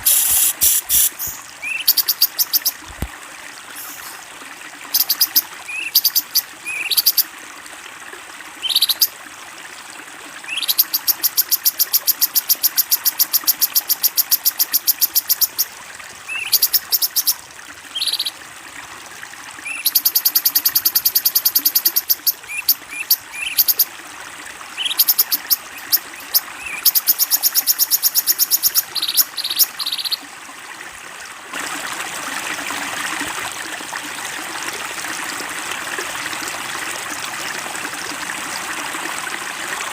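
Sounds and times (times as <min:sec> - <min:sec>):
flowing water: 0:00.0 - 0:39.9
bird trills and chirps: 0:08.6 - 0:09.1, 0:10.5 - 0:11.1, 0:18.0 - 0:18.3, 0:24.8 - 0:30.2.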